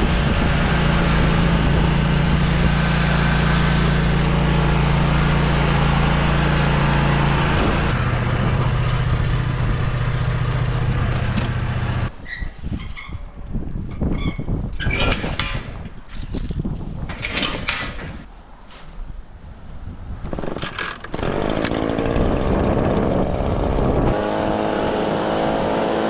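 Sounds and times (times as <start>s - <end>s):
wind noise: 0.0s - 11.4s, 12.1s - 26.0s
small gasoline engine running: 0.0s - 12.1s, 21.0s - 26.0s.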